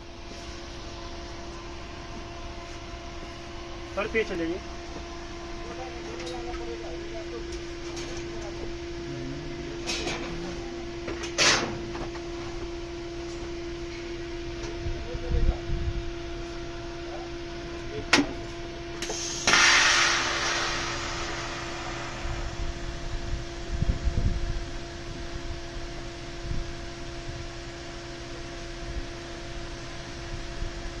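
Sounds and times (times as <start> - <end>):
machine hum: 0.0 - 31.0
loud hissing burst: 19.0 - 23.8.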